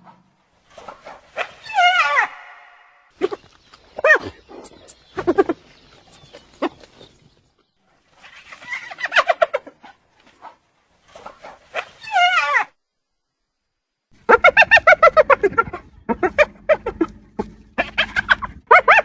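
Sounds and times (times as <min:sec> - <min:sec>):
hyena giggling and yelping: 0:08.3 - 0:10.0, 0:14.2 - 0:19.0.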